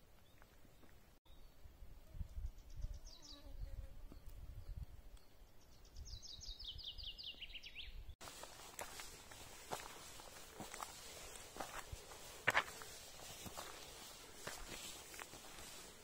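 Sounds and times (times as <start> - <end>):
crunching footsteps: 8.2 - 16.0.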